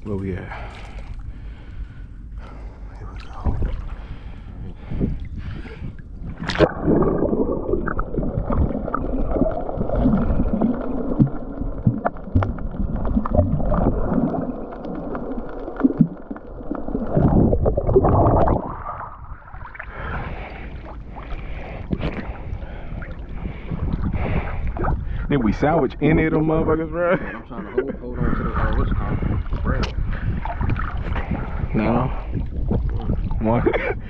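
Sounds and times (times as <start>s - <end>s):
water gurgling and sloshing: 0.0s - 34.0s
sharp water splash: 6.4s - 12.0s.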